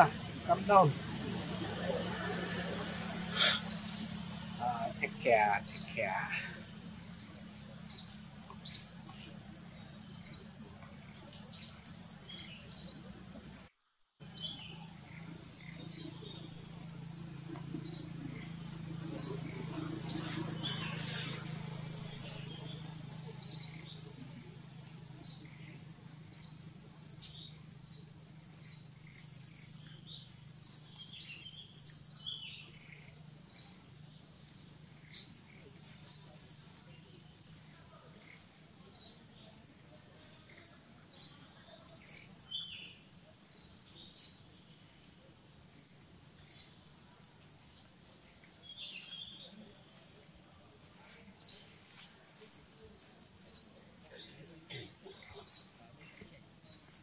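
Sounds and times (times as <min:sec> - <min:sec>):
other bird calls: 0:00.0 - 0:06.7, 0:17.6 - 0:24.3
birds chirping: 0:00.0 - 0:57.0.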